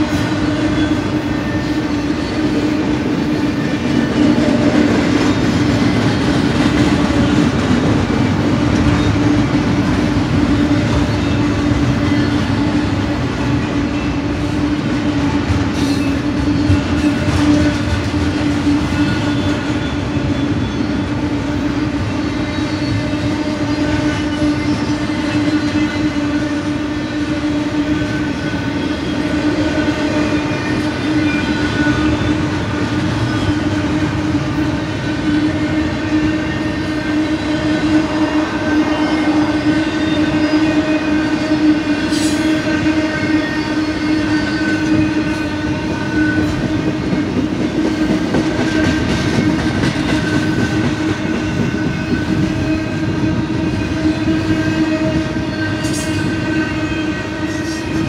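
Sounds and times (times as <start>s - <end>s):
train wheels clattering on rail: 0.0s - 58.0s.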